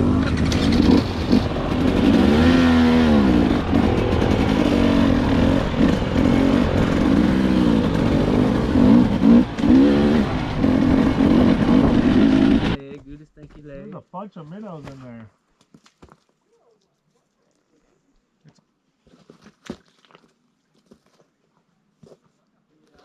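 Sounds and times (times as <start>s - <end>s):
dirt bike engine revving: 0.0s - 12.8s.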